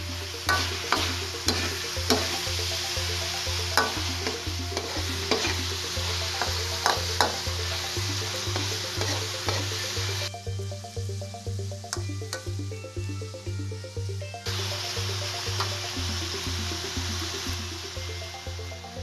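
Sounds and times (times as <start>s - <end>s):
meat sizzling in oil: 0.0s - 10.3s, 14.5s - 18.6s
background music with low beat: 0.0s - 19.0s
spatula scraping a pan: 0.5s - 2.4s, 3.8s - 6.0s, 8.6s - 9.8s.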